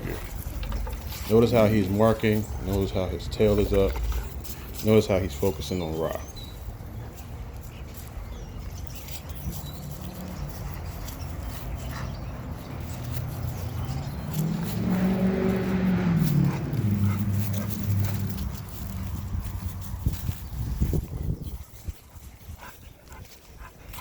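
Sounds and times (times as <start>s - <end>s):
dog growling low: 13.8s - 19.2s.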